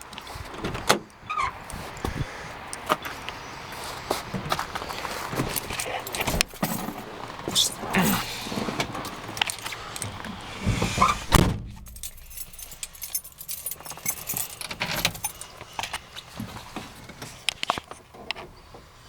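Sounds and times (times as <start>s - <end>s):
car keys jangling: 4.8s - 17.4s
heavy thump: 10.6s - 13.0s.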